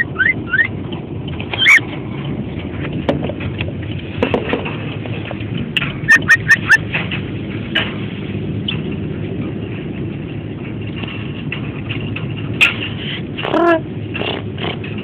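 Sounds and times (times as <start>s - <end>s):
cockatiel chirping: 0.0s - 0.7s, 1.6s - 1.8s, 6.1s - 6.8s
low background rumble: 0.0s - 15.0s.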